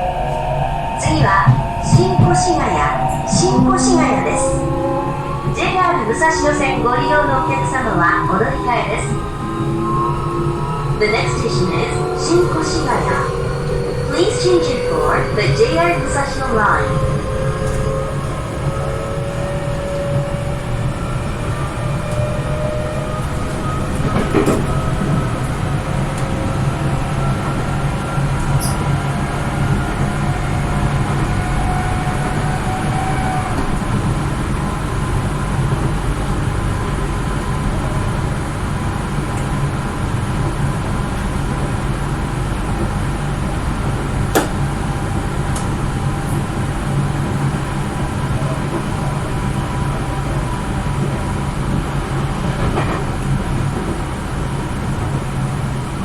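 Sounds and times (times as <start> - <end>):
train motor whine rising: 0.0 - 35.0
train running low rumble: 0.0 - 56.0.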